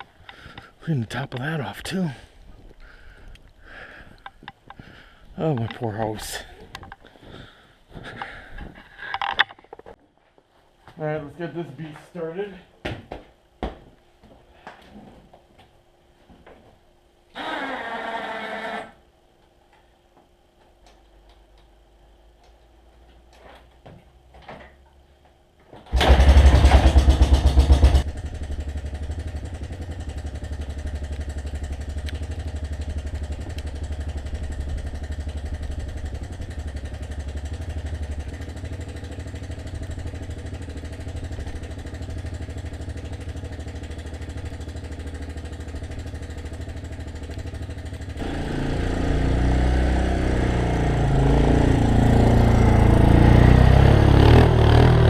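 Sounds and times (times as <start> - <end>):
snowblower engine starting: 17.4 - 18.8, 25.9 - 55.0.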